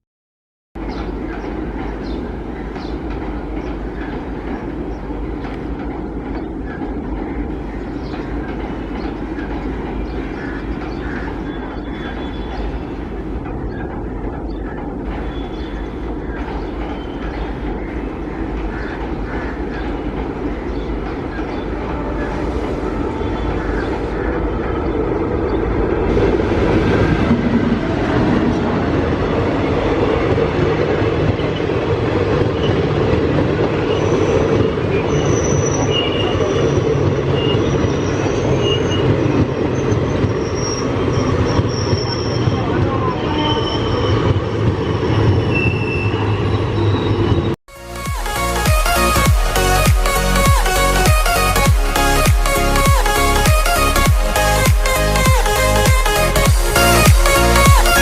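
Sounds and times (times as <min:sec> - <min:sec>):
train rumbling past: 0:00.8 - 0:58.0
train wheel squeals: 0:07.9 - 0:25.0, 0:33.6 - 0:47.6.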